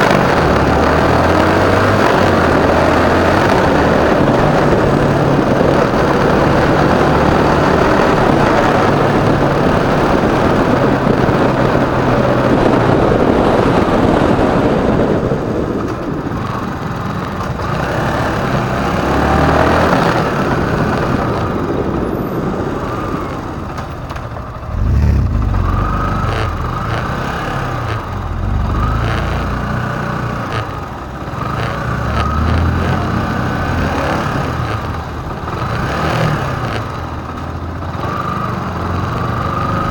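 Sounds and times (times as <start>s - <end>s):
motorcycle engine revving: 0.0s - 39.9s
wind rushing: 0.6s - 34.9s.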